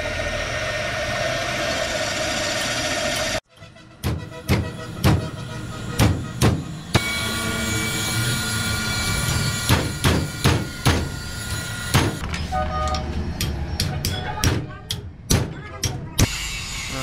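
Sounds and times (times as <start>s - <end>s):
hammer striking steel plate: 4.0s - 7.1s, 9.3s - 11.2s.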